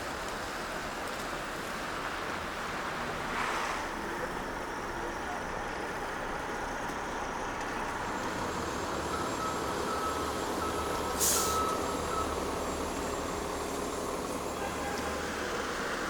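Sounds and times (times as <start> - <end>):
heavy vehicle engine rumbling: 0.0 - 16.0
street traffic: 0.0 - 16.0
reverse warning beeps: 8.9 - 12.8
air brakes hiss: 11.1 - 11.9.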